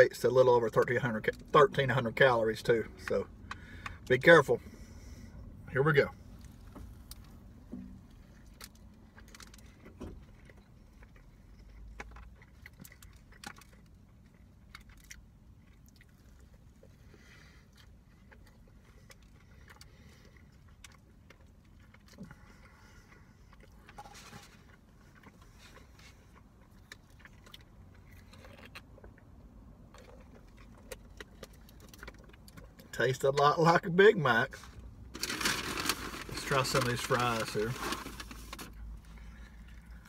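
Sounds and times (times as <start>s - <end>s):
low steady rumble: 0.0s - 40.0s
person chewing: 6.3s - 32.9s.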